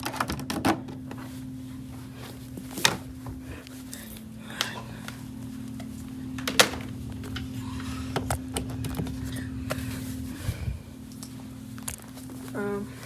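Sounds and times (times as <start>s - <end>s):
steady low hum: 0.0s - 13.0s
vacuum cleaner clicks and knocks: 6.4s - 7.4s.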